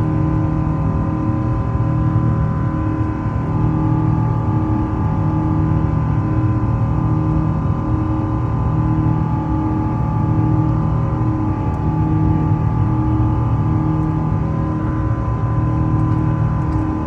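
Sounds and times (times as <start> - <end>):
jet engines rumbling and whining: 0.2 - 17.0.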